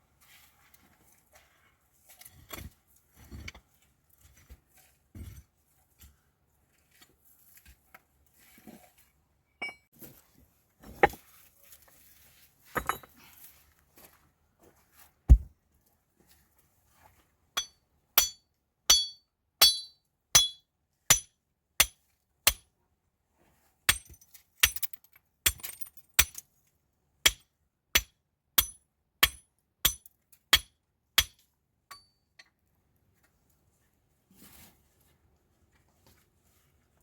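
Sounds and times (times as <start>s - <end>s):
hard evenly paced knocks: 15.3s - 15.5s
heavy thud: 15.3s - 15.5s.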